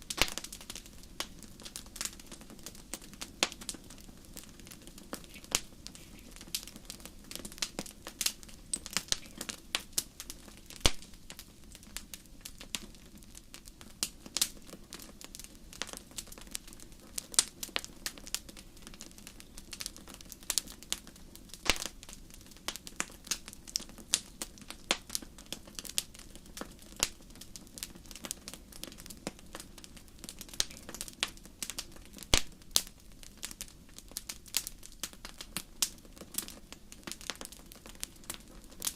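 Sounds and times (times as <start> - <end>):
wood fire crackling and popping: 0.0 - 38.9.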